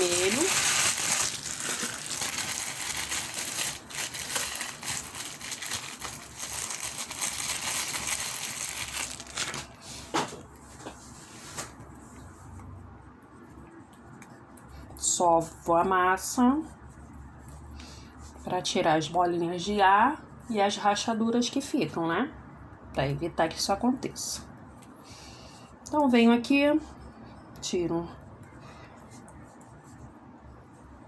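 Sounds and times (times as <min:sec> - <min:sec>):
plastic wrapping crinkling: 0:00.0 - 0:09.9.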